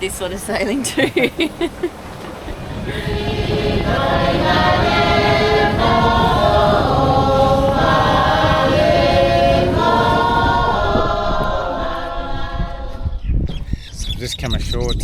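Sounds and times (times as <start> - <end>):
choir singing held chords: 2.4 - 13.3.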